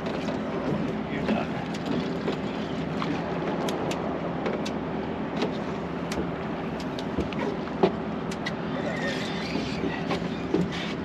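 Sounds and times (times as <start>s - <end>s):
boat engine running: 0.0s - 11.0s
wash of noise: 0.0s - 11.0s.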